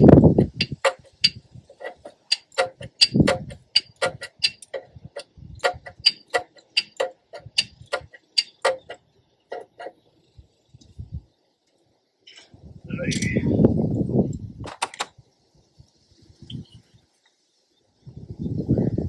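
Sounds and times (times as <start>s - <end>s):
sharp clicks: 0.3s - 9.9s.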